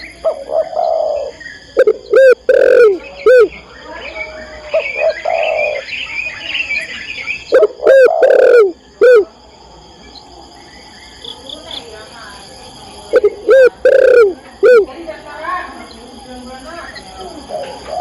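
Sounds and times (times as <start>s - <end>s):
dove cooing: 0.0s - 3.5s, 4.6s - 5.9s, 7.5s - 9.3s, 13.1s - 14.9s, 17.4s - 18.0s
small birds chirping: 0.0s - 18.0s.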